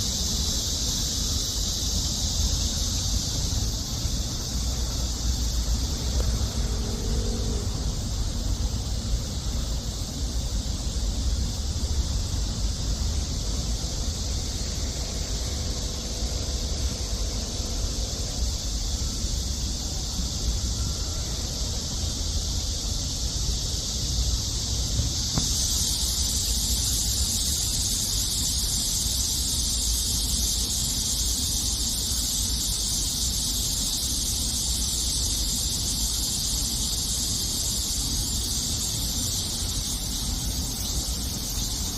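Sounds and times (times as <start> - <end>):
low outdoor rumble: 0.0 - 20.8
insect chorus shrilling: 0.0 - 41.9.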